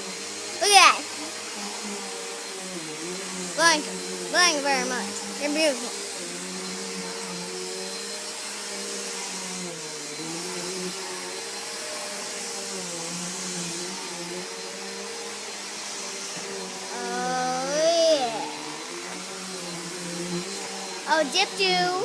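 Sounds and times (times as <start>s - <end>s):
appliance motor hum: 16.6s - 22.0s.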